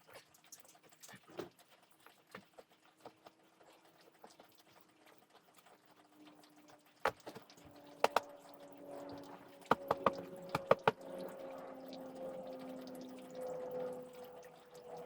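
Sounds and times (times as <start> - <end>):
sharp knocks: 7.1 - 7.4, 8.0 - 8.3, 9.7 - 11.0.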